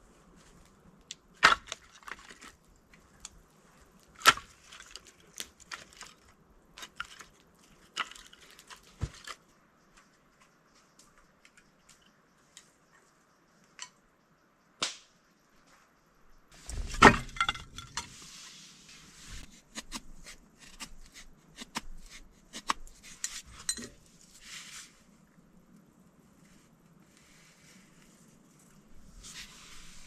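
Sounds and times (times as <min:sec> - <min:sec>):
wood knocks and cracks: 0:01.4 - 0:02.6, 0:04.2 - 0:09.4, 0:16.6 - 0:18.1.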